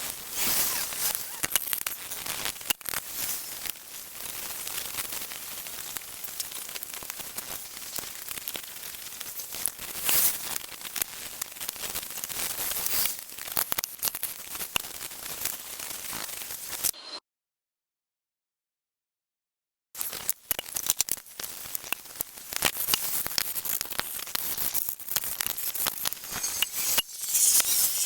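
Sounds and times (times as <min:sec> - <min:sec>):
brush scrubbing metal: 0:25.5 - 0:28.0.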